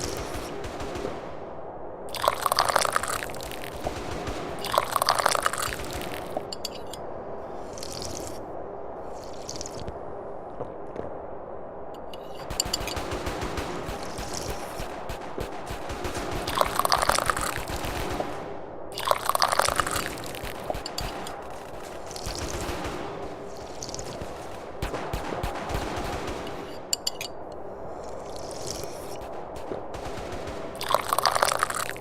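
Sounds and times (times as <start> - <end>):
tea slurping: 2.1 - 3.8, 4.6 - 6.9, 7.7 - 8.4, 9.1 - 9.9, 16.5 - 17.7, 19.0 - 21.3, 30.8 - 32.0.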